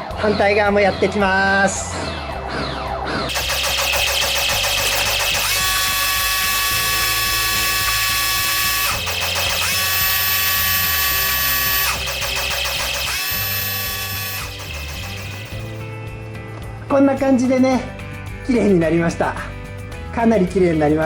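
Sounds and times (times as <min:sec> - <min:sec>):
pressure washer motor whining: 0:03.3 - 0:15.8.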